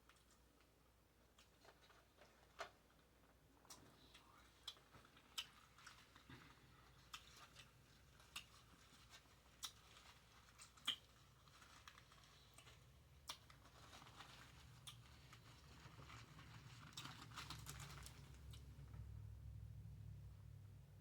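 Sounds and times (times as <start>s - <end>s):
close chewing with wet clicks: 3.6s - 18.9s.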